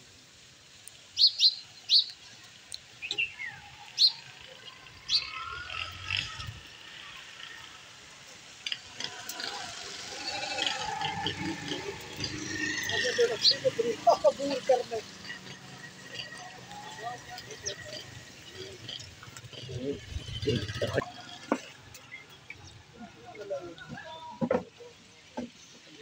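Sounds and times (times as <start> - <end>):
sharp bird chirps: 1.2 - 2.2.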